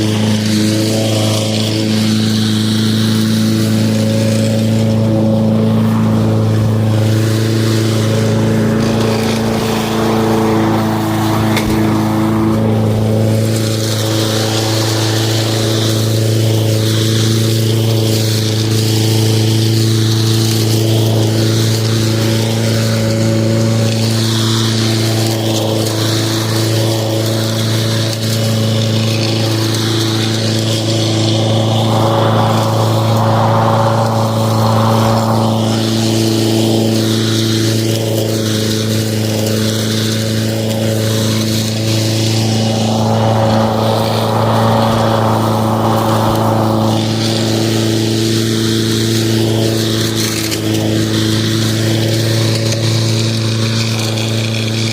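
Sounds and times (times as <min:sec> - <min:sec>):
lawn mower running: 0:00.0 - 0:54.9
rushing noise: 0:05.7 - 0:18.0, 0:28.4 - 0:38.4, 0:39.1 - 0:50.2.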